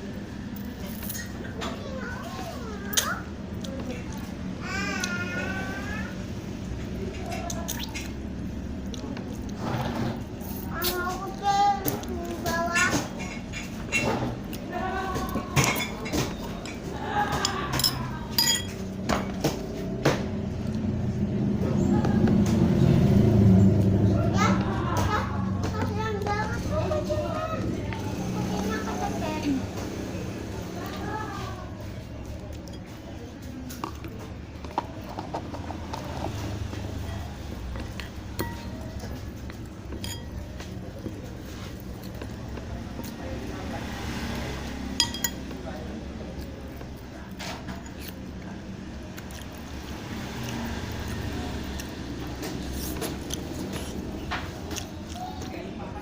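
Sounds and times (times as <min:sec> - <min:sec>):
spoon clinking against bowl: 0:17.4 - 0:18.8, 0:38.4 - 0:38.8, 0:39.9 - 0:40.5, 0:45.0 - 0:45.6.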